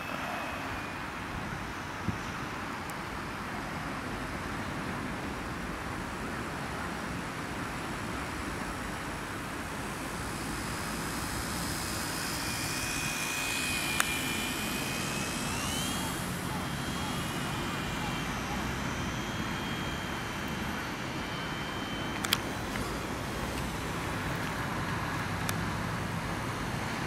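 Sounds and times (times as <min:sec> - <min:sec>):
model aircraft propeller whining: 0:00.0 - 0:03.3, 0:06.1 - 0:27.0
sharp click: 0:22.1 - 0:22.9.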